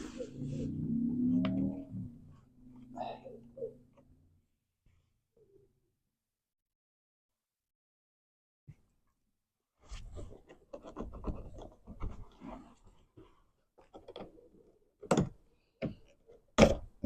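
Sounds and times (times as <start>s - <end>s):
plastic trim scraping and rubbing: 9.9s - 12.8s.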